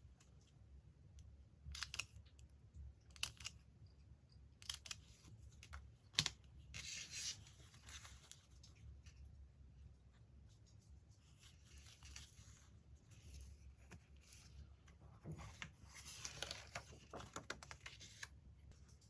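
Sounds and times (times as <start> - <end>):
paper rustling: 4.8 - 9.2, 10.4 - 19.0.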